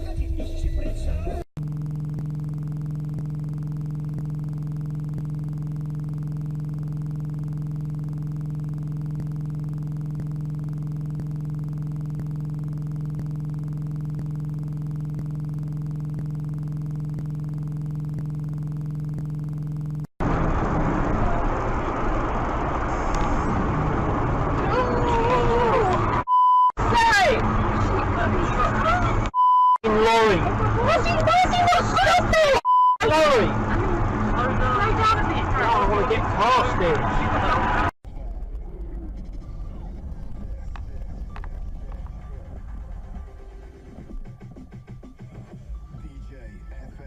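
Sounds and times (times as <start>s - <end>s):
noisy vehicle sound: 0.0s - 46.0s
low mechanical hum: 1.6s - 26.2s.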